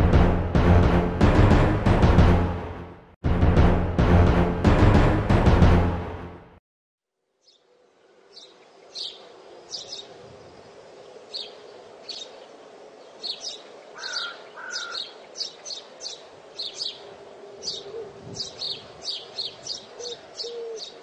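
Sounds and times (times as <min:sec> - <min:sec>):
small birds chirping: 0:08.3 - 0:21.0.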